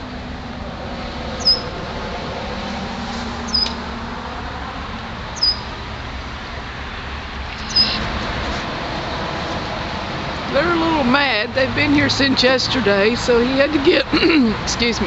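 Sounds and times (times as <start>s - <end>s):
traffic noise: 0.0s - 15.0s
bird chirping: 1.4s - 1.8s, 3.5s - 3.8s, 5.4s - 5.8s, 7.5s - 8.1s.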